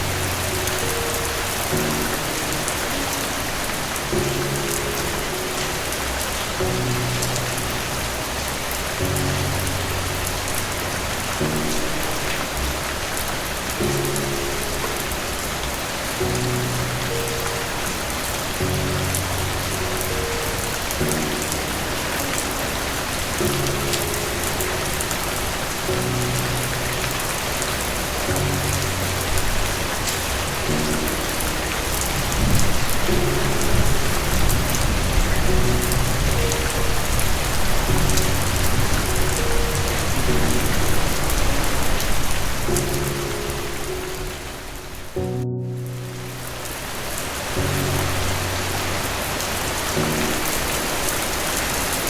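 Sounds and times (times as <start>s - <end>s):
soft slow piano chords: 0.0s - 52.0s
steady rain hiss: 0.0s - 52.0s
low thunder rumble: 28.4s - 43.2s.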